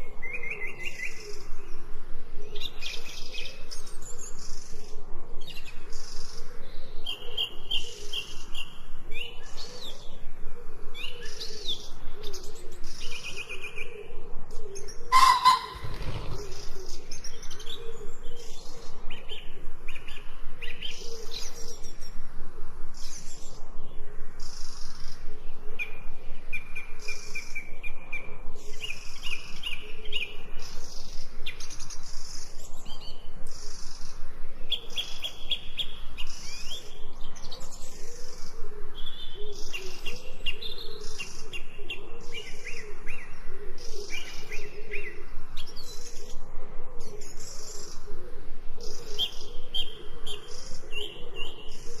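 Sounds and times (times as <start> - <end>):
birds chirping and trilling: 0.0 - 22.2, 22.8 - 52.0
low wavering bird call: 15.1 - 16.3.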